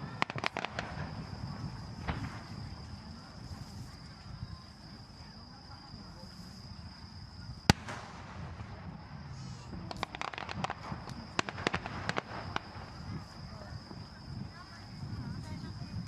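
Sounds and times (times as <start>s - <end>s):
firework crackling pops: 0.0s - 3.9s, 7.6s - 14.0s
firework sharp burst: 0.0s - 3.9s, 7.6s - 14.0s.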